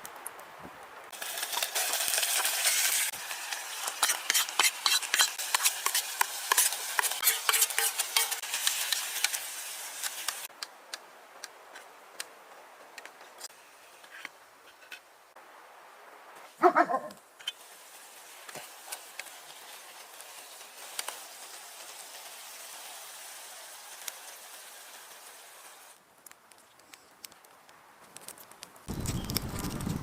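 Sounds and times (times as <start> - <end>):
food sizzling in a pan: 1.1 - 10.5, 17.4 - 26.0.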